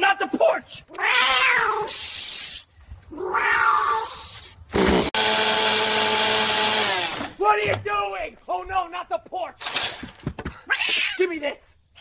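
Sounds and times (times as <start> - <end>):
cat meowing: 1.0 - 1.9, 3.1 - 4.2
cat hissing: 1.4 - 2.7
chainsaw running: 4.7 - 7.4.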